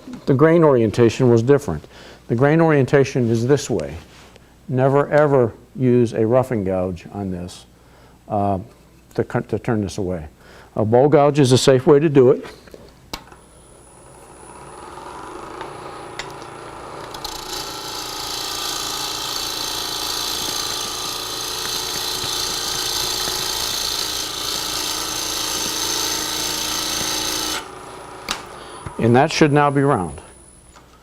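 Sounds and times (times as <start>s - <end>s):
lathe humming: 13.6s - 30.8s
gouge cutting wood on lathe: 14.3s - 29.0s.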